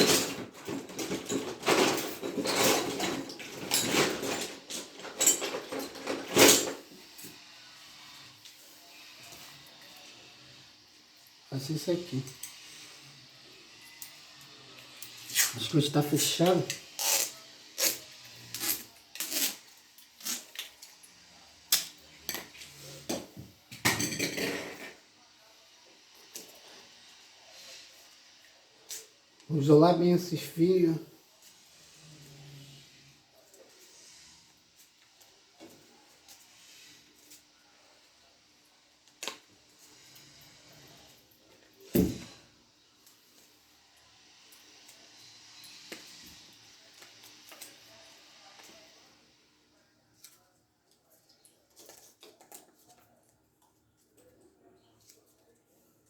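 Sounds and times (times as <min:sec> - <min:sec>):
hard objects clattering and scraping: 0:00.0 - 0:07.0, 0:22.2 - 0:25.0.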